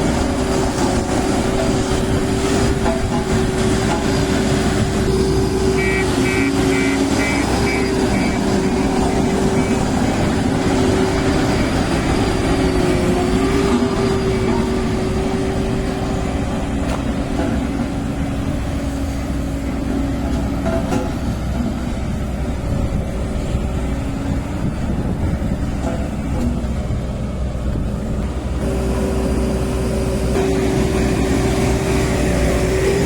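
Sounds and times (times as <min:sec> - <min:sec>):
compactor diesel engine running: 0:00.0 - 0:33.0
short high beeps: 0:05.8 - 0:08.4.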